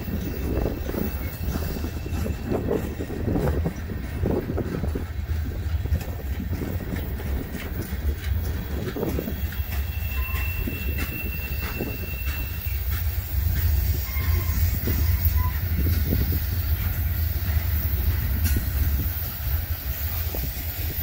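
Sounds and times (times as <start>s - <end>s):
train wheels rumbling on rails: 0.0s - 21.0s
wheels clicking over rail joints: 0.0s - 21.0s
high wheel squeal: 9.1s - 16.6s.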